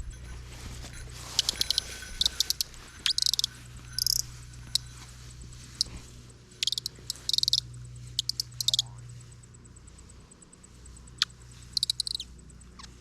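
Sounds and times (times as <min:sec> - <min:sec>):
bird caller squeaky chirps: 0:01.3 - 0:05.0, 0:06.6 - 0:08.9, 0:11.2 - 0:13.0.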